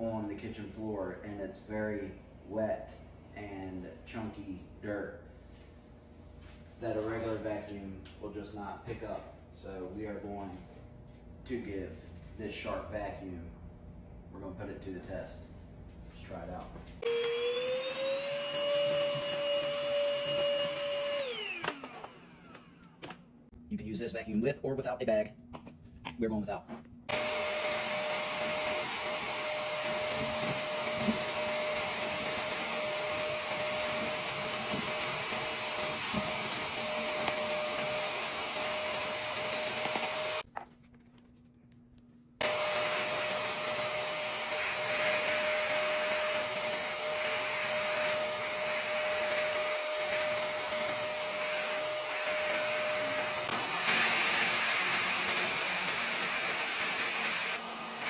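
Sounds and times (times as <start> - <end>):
wet dry vacuum whining: 17.0 - 23.3, 27.1 - 40.5, 42.4 - 58.0.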